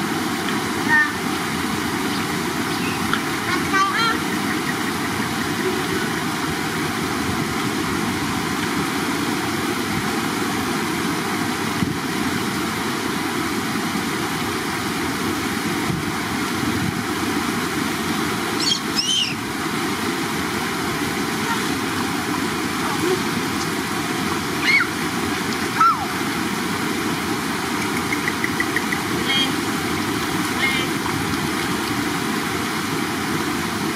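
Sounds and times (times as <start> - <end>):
running water: 0.0 - 33.9
short high chirps: 18.6 - 19.3.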